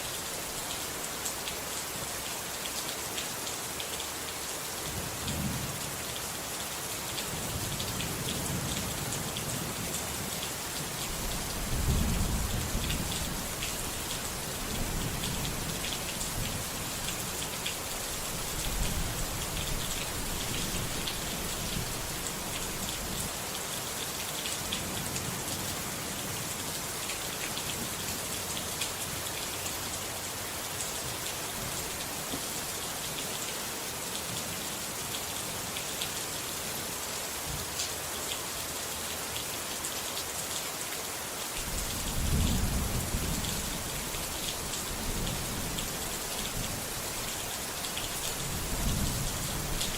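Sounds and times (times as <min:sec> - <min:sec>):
steady rain falling: 0:00.0 - 0:49.9
low rumbles of thunder: 0:11.2 - 0:16.7, 0:41.6 - 0:45.9, 0:48.5 - 0:49.9.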